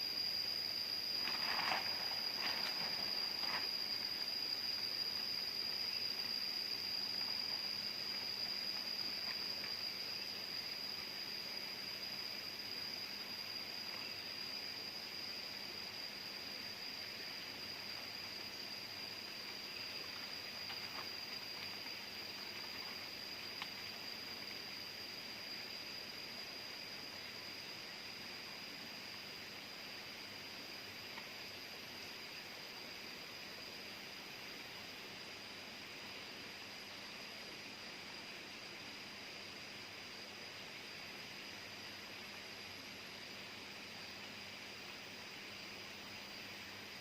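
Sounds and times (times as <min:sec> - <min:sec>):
insects droning: 0:00.0 - 0:47.0
soft hiss: 0:00.0 - 0:47.0
faint click: 0:23.6 - 0:23.8, 0:31.1 - 0:31.3.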